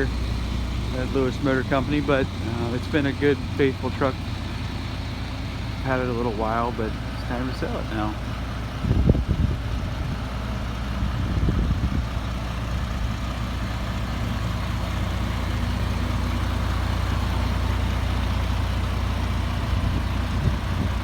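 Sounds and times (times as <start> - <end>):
diesel truck idling: 0.0 - 21.0.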